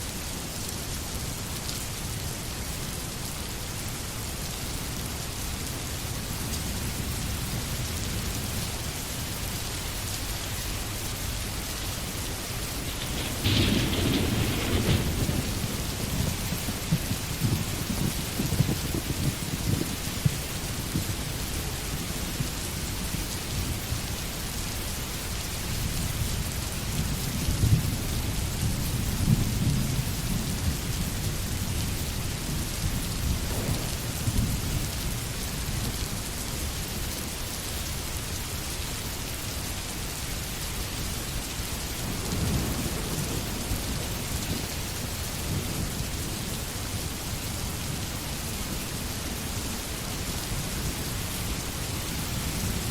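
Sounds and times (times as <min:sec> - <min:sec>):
steady rain: 0:00.0 - 0:52.9
thunder rumbling: 0:06.5 - 0:36.8, 0:41.4 - 0:52.9.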